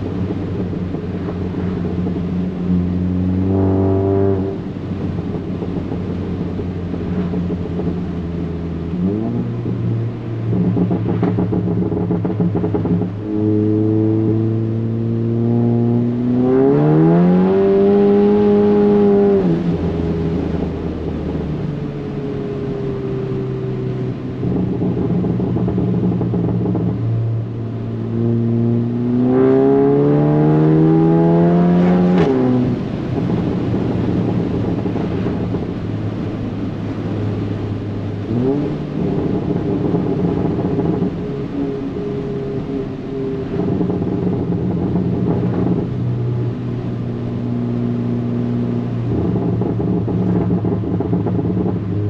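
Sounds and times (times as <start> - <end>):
car engine revving hard: 0.0 - 6.4, 7.0 - 20.8, 27.7 - 36.4
exhaust crack: 0.0 - 52.0.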